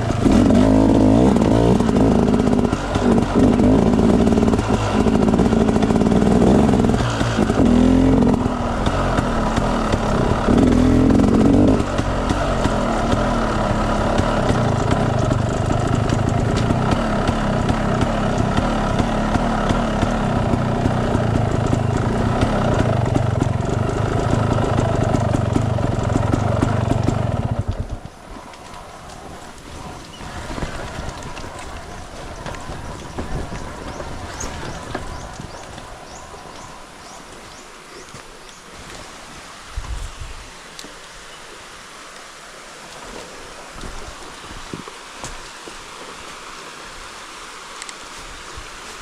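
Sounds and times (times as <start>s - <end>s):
dirt bike engine revving: 0.0s - 28.0s, 29.8s - 37.6s.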